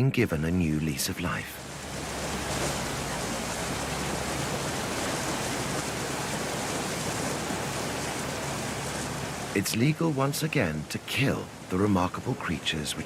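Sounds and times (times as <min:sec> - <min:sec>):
steady rushing noise: 0:01.6 - 0:12.0.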